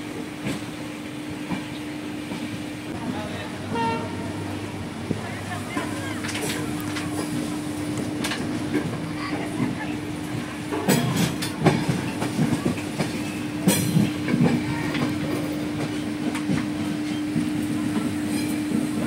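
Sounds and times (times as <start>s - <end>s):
train wheels clacking over rail joints: 5.8s - 19.0s.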